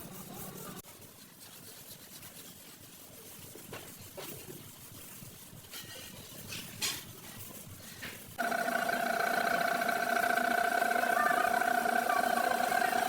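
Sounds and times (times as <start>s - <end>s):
machine humming: 8.4s - 13.0s.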